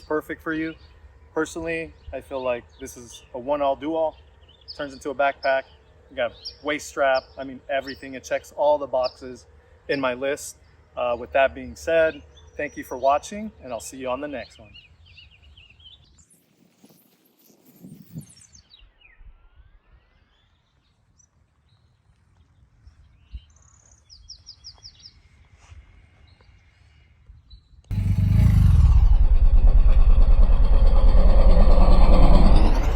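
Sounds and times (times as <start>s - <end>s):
faint bird chirps: 0.0s - 27.9s
loud engine-like rumble: 27.9s - 32.9s.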